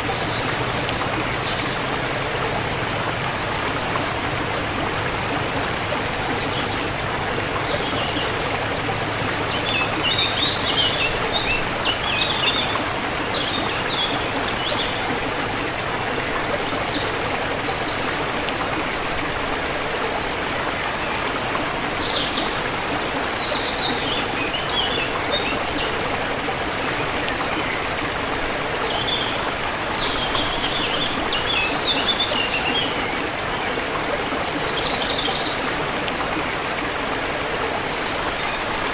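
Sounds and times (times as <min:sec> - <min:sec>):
river rushing and trickling: 0:00.0 - 0:38.9.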